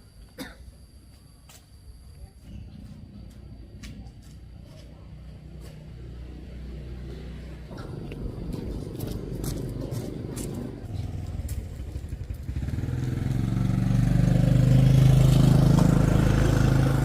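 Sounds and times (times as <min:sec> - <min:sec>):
small engine running: 0:05.3 - 0:17.0.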